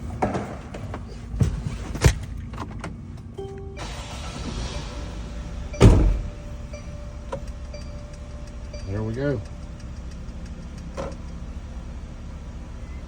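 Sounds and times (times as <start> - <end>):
short beep: 3.4 - 9.8
heavy thud: 5.8 - 6.5.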